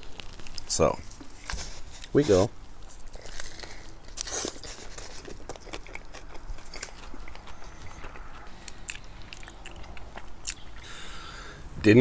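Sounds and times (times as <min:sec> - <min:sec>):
wet chewing: 0:01.4 - 0:11.2
person biting into sandwich: 0:03.0 - 0:10.9.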